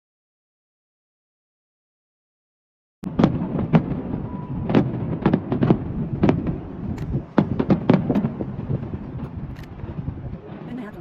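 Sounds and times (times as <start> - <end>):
fireworks bangs: 3.0 - 11.0.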